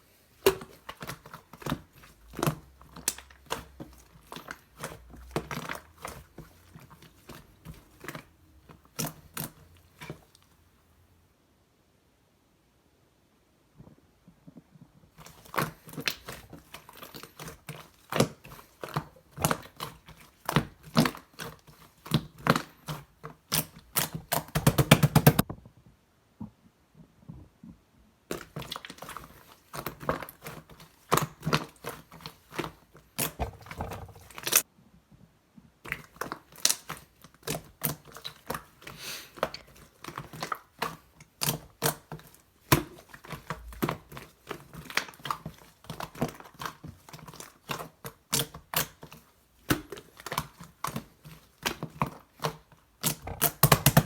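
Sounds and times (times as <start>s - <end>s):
slime clicking and popping: 40.0s - 54.0s.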